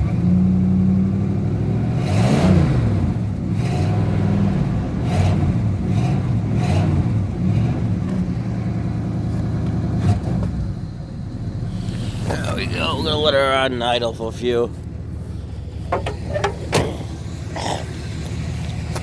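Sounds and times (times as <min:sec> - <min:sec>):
car engine revving on cold start: 0:00.0 - 0:08.2.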